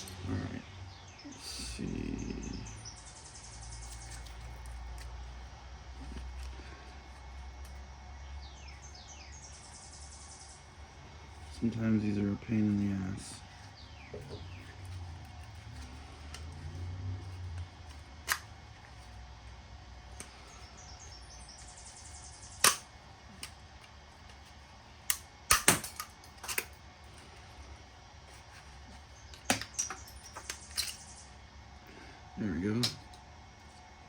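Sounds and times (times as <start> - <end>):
metal tools clicking and knocking: 22.6 - 22.8, 25.1 - 26.8, 29.3 - 31.2.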